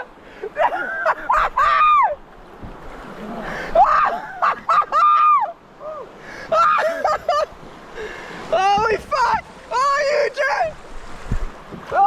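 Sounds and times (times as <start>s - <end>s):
river rapids rushing: 0.0s - 12.0s
man shouting excitedly: 8.5s - 10.8s.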